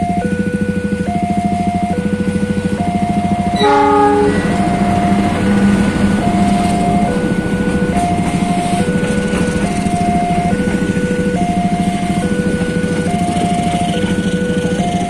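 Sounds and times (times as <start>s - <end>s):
locomotive engine: 0.0s - 15.0s
train wheels on rails: 1.9s - 15.0s
crossing bell two tones: 3.5s - 9.0s
train horn blast: 3.5s - 9.2s.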